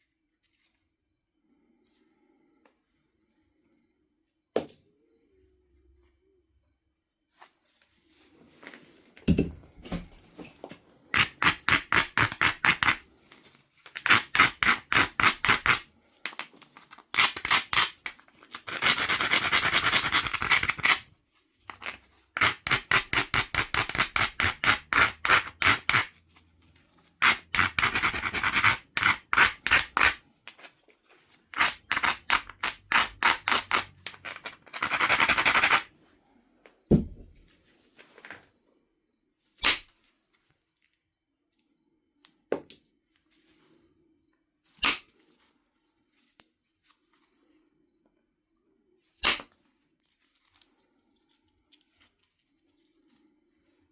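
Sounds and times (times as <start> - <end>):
stone scraping flint: 11.2 - 15.9, 17.1 - 21.1, 22.1 - 26.2, 26.8 - 35.9.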